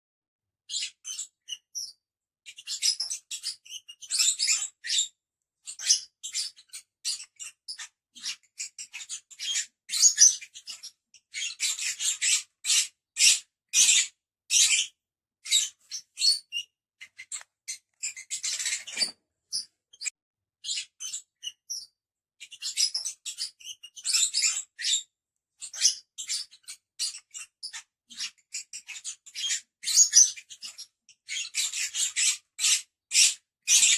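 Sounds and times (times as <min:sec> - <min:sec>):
lovebirds chirping: 0:15.5 - 0:21.9.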